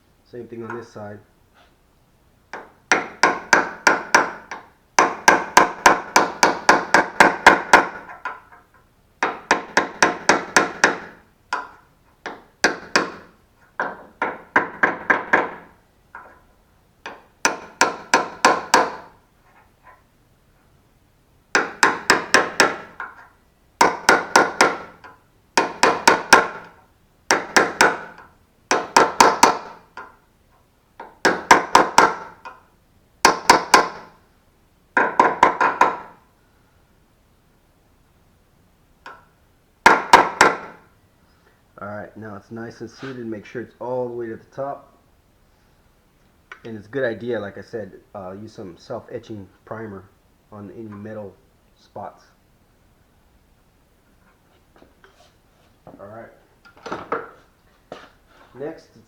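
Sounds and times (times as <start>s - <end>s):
hammer tapping metal chisel: 2.5s - 16.4s, 17.0s - 20.0s, 21.5s - 30.2s.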